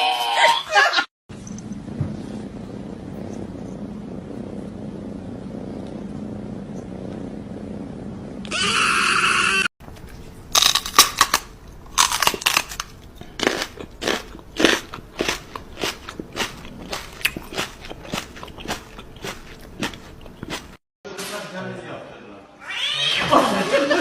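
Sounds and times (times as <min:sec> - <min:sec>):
cat chewing crunchy food: 0:09.9 - 0:20.8.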